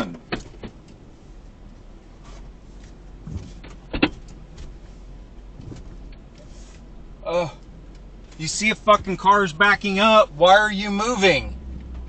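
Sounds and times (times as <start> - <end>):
low steady hum: 0.0 - 12.0
clunks and knocks in truck cab: 3.2 - 4.8, 5.6 - 6.1.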